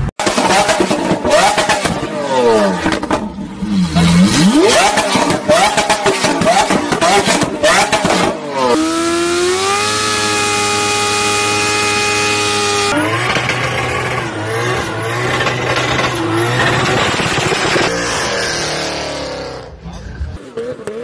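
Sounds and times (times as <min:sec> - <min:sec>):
rough car engine: 0:00.0 - 0:21.0
engine revving high: 0:03.5 - 0:21.0.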